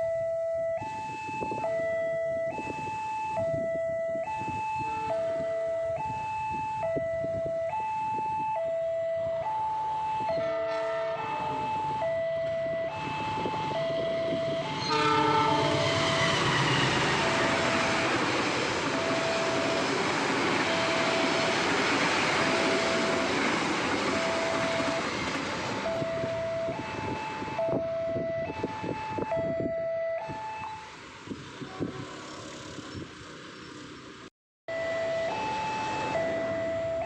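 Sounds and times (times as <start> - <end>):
level crossing two-tone alarm: 0.0 - 25.2, 25.8 - 30.9, 34.7 - 37.0
train horn: 10.3 - 11.7, 14.5 - 18.2, 31.6 - 32.6
train wheels rushing on rail: 14.3 - 26.0.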